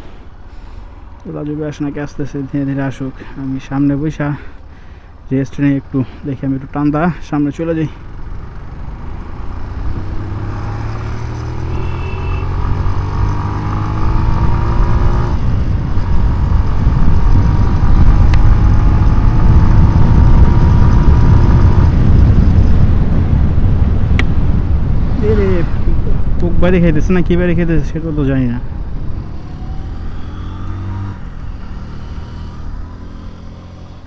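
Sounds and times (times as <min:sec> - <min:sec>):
passing vehicle engines droning: 0:00.0 - 0:19.6, 0:24.6 - 0:34.0
wind rumble on microphone: 0:12.5 - 0:32.9.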